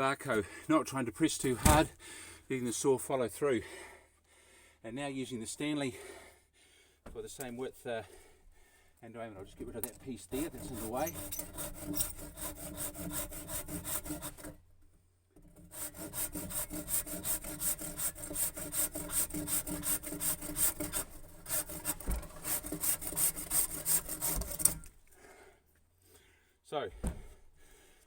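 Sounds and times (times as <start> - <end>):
handsaw cutting wood: 10.3 - 14.6, 15.4 - 25.0.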